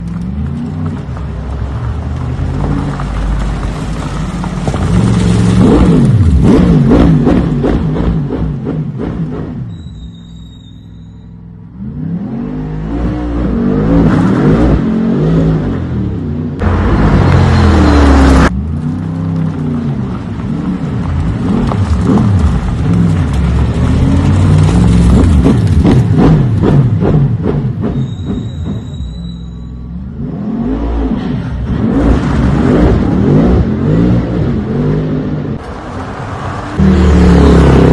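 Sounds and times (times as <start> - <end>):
engines idling and revving: 0.0 - 37.9
racing engines revving: 30.0 - 37.9.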